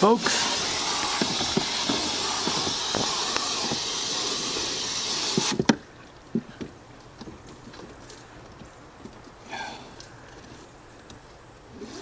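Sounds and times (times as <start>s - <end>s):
hose spraying water: 0.0s - 5.7s.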